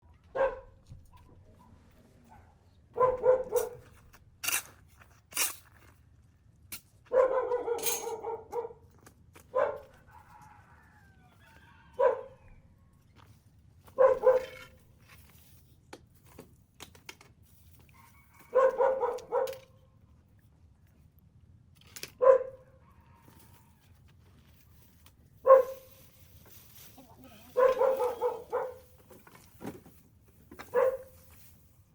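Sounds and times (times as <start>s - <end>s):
dog barking: 0.3s - 0.8s, 1.6s - 3.8s, 7.1s - 8.9s, 9.5s - 10.5s, 11.9s - 12.4s, 14.0s - 14.6s, 18.4s - 19.7s, 22.2s - 23.0s, 25.4s - 25.9s, 27.5s - 29.0s, 30.7s - 31.2s.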